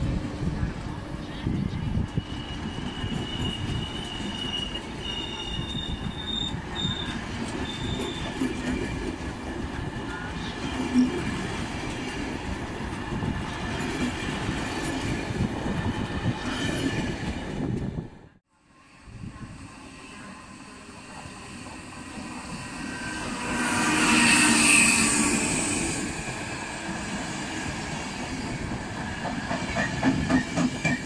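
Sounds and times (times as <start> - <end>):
train wheels clattering on track: 2.0 - 17.9, 26.1 - 31.0
high wheel squeal: 2.1 - 8.5.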